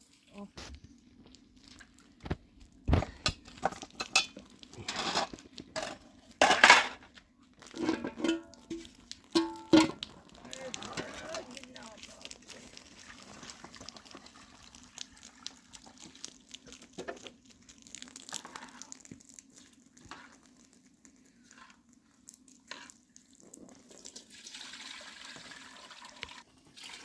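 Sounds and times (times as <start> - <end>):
water running and splashing: 7.6 - 27.0.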